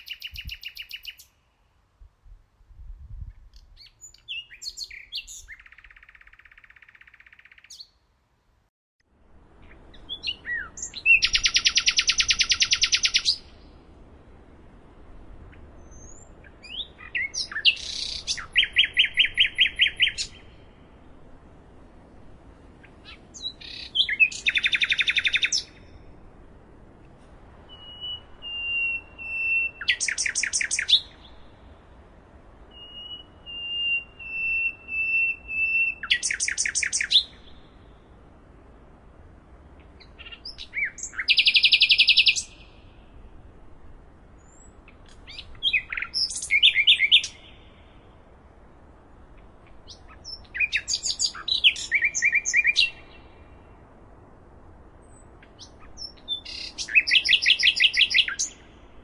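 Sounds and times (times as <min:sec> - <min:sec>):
nightingale singing: 0:00.0 - 0:01.6, 0:03.2 - 0:08.0, 0:09.6 - 0:13.9, 0:15.5 - 0:20.9, 0:22.8 - 0:26.0, 0:27.6 - 0:31.8, 0:32.4 - 0:38.2, 0:39.8 - 0:43.4, 0:44.4 - 0:48.3, 0:49.2 - 0:53.9, 0:55.0 - 0:59.0.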